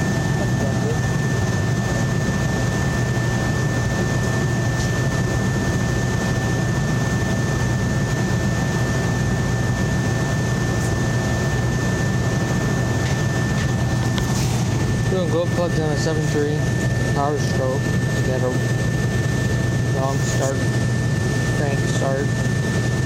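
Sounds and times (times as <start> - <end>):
high-pitched whine: 0.0 - 23.0
machine hum: 0.0 - 23.0.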